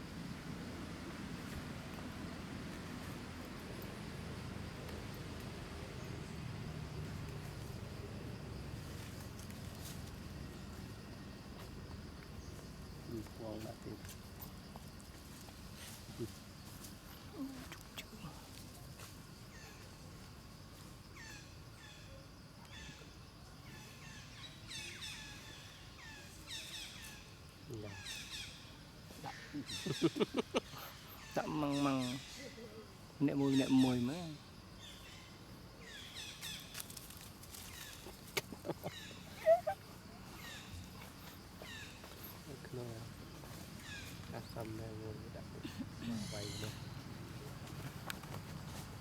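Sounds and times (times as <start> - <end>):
birds chirping: 22.7 - 36.9, 37.6 - 49.0
high-pitched falling animal calls: 37.9 - 40.7.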